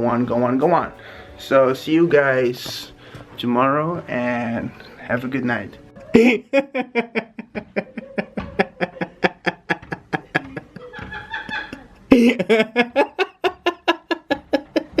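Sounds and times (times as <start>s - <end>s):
person laughing: 6.1s - 15.0s.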